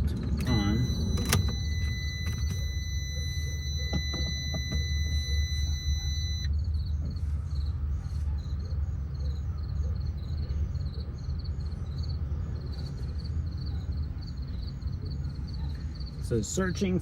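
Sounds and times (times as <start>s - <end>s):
high electronic tone: 0.0s - 6.5s
low rumble: 0.0s - 7.7s
insects chirping: 0.0s - 17.0s.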